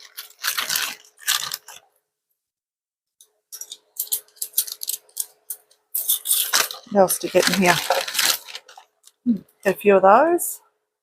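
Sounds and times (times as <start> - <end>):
plastic packaging rustling and clicking: 0.0 - 2.0, 3.6 - 9.2.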